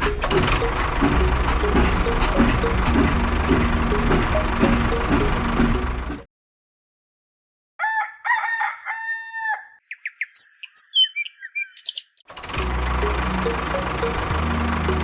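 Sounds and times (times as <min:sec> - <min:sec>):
rooster crowing: 0:07.8 - 0:09.8
bird chirps and whistles: 0:09.8 - 0:12.2.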